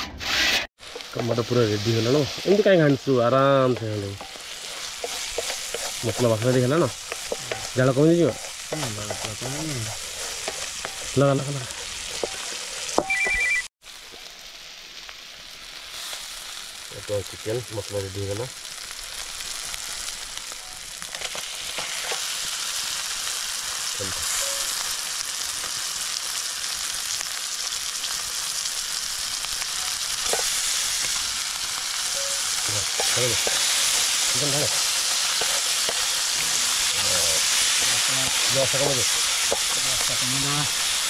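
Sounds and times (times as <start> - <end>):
masala sizzling in a pan: 0.2 - 13.0, 13.8 - 41.0
wooden spatula stirring: 3.6 - 13.0.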